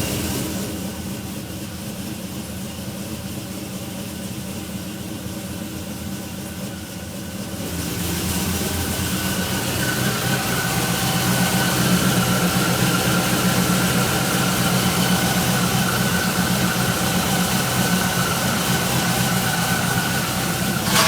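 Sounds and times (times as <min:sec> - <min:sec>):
supercharged car engine rough idle: 0:00.0 - 0:21.0.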